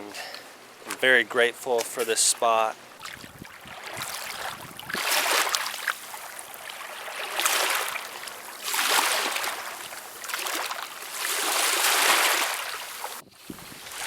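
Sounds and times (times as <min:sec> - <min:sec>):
waves washing on pebbly shore: 0:03.0 - 0:14.0.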